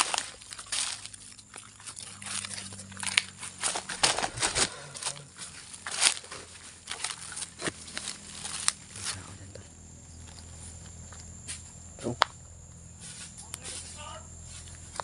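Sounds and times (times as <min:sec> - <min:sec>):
footsteps crunching dry leaves: 0:00.0 - 0:09.5
brushing past undergrowth: 0:00.0 - 0:11.8, 0:12.8 - 0:15.0.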